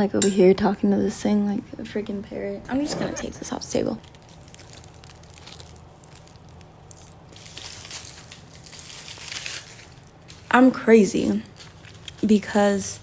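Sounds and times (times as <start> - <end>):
crinkling and rustling: 2.7 - 13.0.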